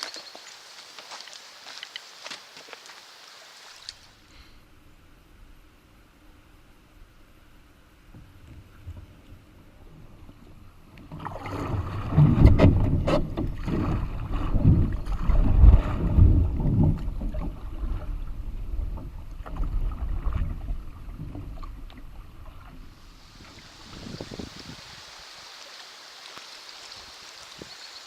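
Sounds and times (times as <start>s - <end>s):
water splashing around canoe: 10.0s - 25.2s.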